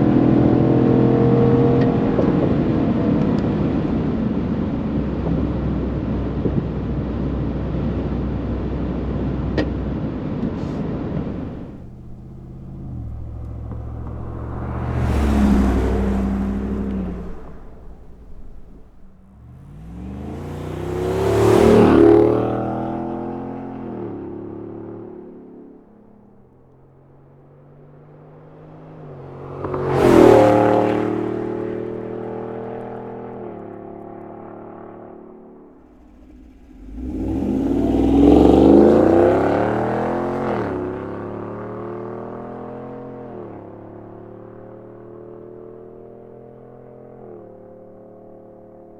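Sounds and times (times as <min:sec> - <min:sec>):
car engine accelerating past: 0:11.2 - 0:25.8, 0:27.3 - 0:48.7.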